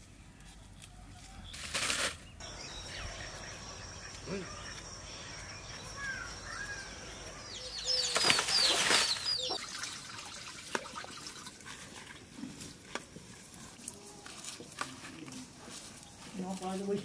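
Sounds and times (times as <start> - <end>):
birds chirping: 2.2 - 10.6.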